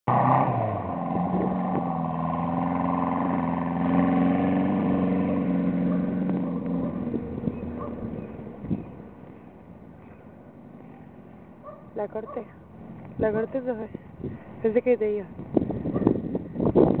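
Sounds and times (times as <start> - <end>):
small car engine running hard: 0.1 - 13.2, 15.3 - 17.0.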